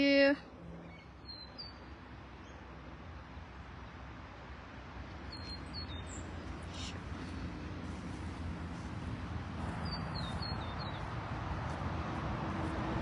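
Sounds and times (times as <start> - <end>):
outdoor background hiss: 0.0 - 13.0
high bird chirps: 0.8 - 2.6, 5.3 - 6.8, 9.8 - 11.1.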